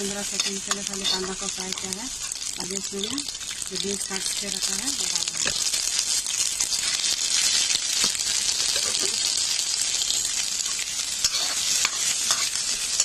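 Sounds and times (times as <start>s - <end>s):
beans sizzling in hot oil: 0.0s - 13.0s
metal spoon scraping pan: 0.3s - 2.0s, 11.2s - 13.0s.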